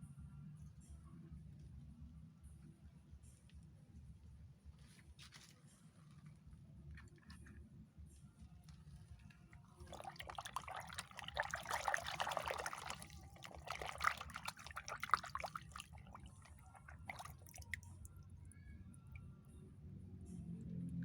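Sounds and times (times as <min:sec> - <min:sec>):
water splashing and trickling: 0:09.6 - 0:19.3.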